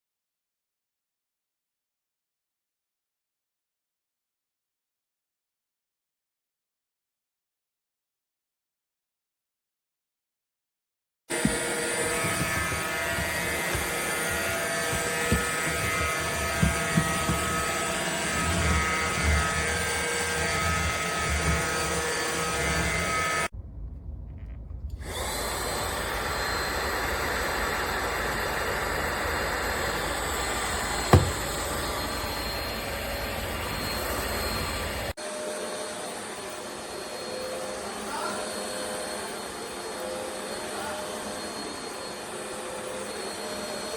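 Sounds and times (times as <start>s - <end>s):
knocks: 11.3s - 20.7s, 31.0s - 31.8s
stick vacuum cleaner running: 11.3s - 23.5s, 25.0s - 43.9s.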